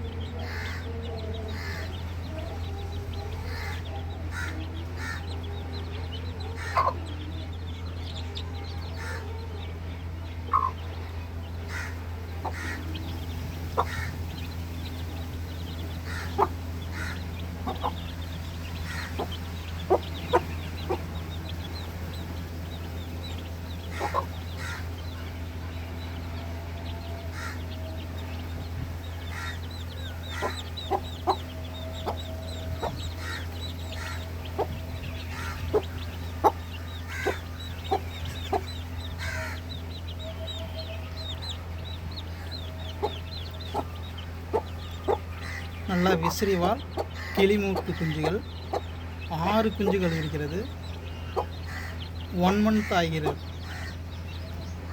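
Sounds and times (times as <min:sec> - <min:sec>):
chicks clucking and calling: 0:00.0 - 0:54.9
steady low hum: 0:00.0 - 0:54.9.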